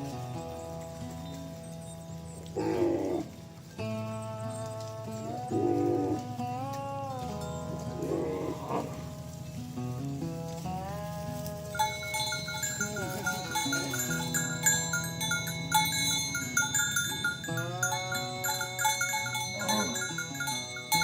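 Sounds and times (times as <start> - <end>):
background music: 0.0 - 21.0
cattle mooing: 2.5 - 3.6, 5.1 - 6.6, 7.7 - 9.3, 12.8 - 14.9, 16.3 - 21.0.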